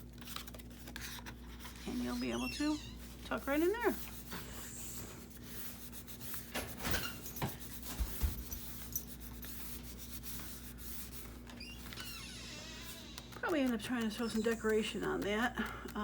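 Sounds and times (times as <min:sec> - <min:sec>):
paper and card rubbing: 0:00.0 - 0:16.0.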